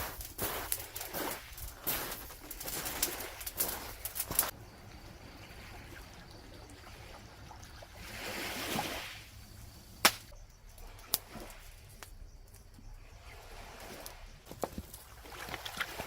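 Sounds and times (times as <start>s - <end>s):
water-like rush: 0.0s - 12.0s, 13.0s - 16.0s.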